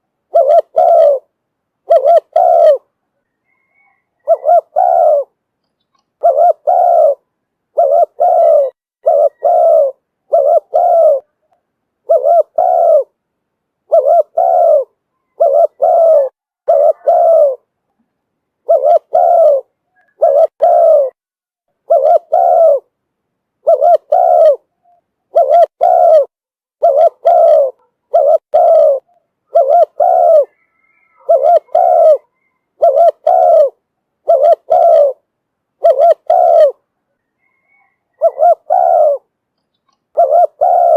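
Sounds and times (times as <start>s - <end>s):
dove cooing: 0.0s - 13.2s, 13.8s - 17.7s, 18.6s - 21.2s, 21.8s - 22.9s, 23.6s - 40.9s.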